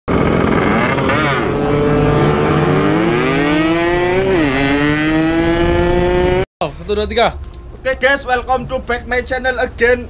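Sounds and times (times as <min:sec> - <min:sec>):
two-stroke motorcycle accelerating: 0:00.1 - 0:06.5.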